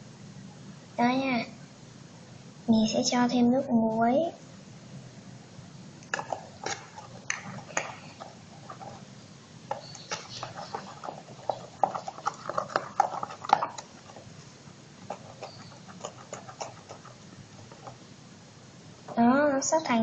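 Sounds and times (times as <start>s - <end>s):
chopsticks stirring slime: 6.0s - 18.0s.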